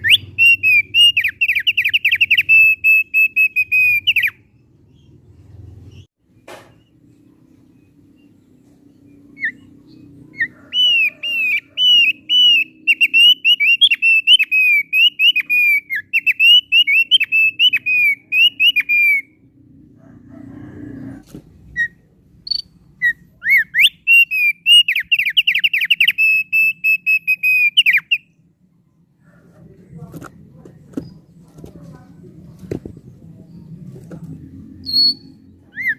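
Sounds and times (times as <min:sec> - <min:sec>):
bird singing whistled notes: 0:00.0 - 0:05.1, 0:09.0 - 0:19.4, 0:21.8 - 0:28.4, 0:34.8 - 0:35.9.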